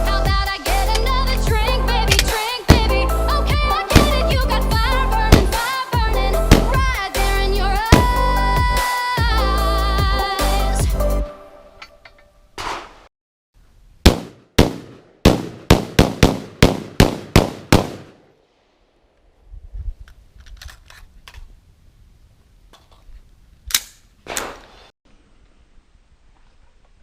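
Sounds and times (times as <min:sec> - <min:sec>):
gun handling clicks: 0:00.8 - 0:01.1, 0:02.1 - 0:02.4, 0:20.1 - 0:21.5, 0:23.7 - 0:24.1
gunshots: 0:02.1 - 0:03.1, 0:03.9 - 0:04.5, 0:06.5 - 0:06.9, 0:14.1 - 0:18.2.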